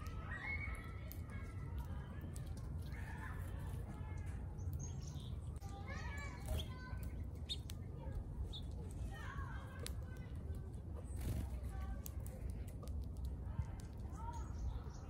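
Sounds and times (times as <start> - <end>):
birds chirping and calling: 0.0 - 9.0, 12.7 - 15.0.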